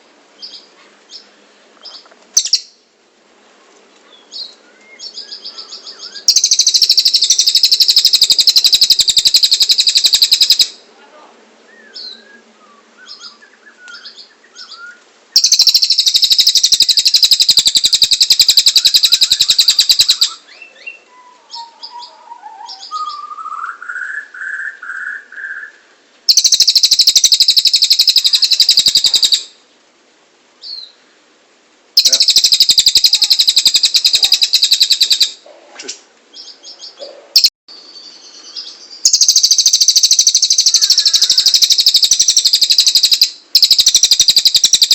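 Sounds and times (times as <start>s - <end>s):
soft bird chirps: 0.4s - 2.8s, 3.9s - 10.7s, 11.7s - 29.6s, 32.0s - 35.4s, 36.3s - 44.9s
songbird fast high trills: 5.0s - 10.8s, 13.1s - 25.7s, 32.0s - 35.4s, 38.1s - 44.9s.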